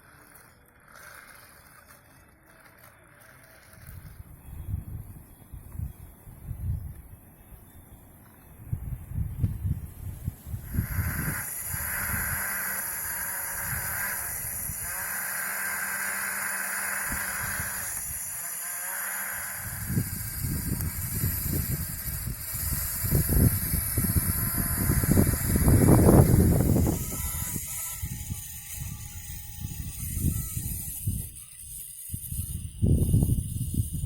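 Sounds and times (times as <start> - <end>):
small motor whining: 0.0 - 6.0, 8.2 - 34.0
hissing: 10.1 - 32.8.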